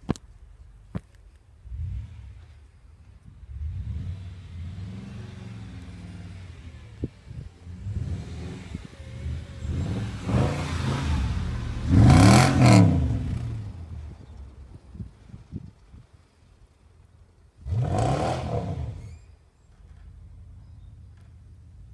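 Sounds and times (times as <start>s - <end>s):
car engine revving and accelerating: 3.5s - 13.8s, 17.6s - 19.1s.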